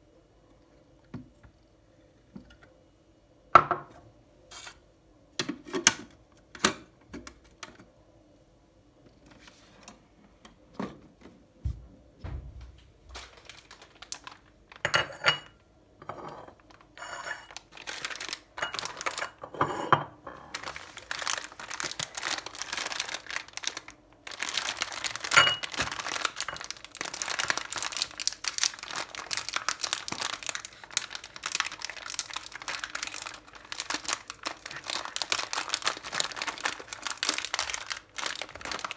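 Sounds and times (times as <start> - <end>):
dense continuous crackling: 12.6 - 14.8, 20.6 - 38.9.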